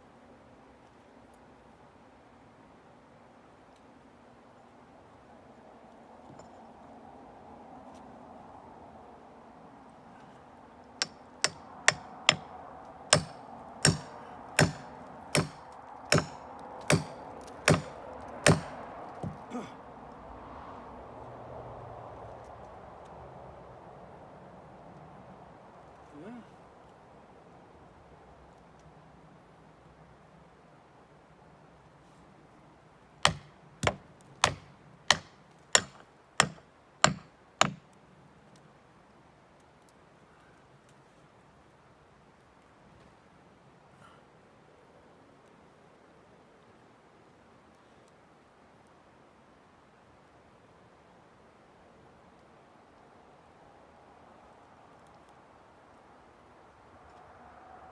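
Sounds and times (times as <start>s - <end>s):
sharp chopping strikes: 11.4s - 12.4s, 13.1s - 19.6s, 33.3s - 37.8s
light knocks: 13.2s - 19.5s, 33.3s - 37.8s.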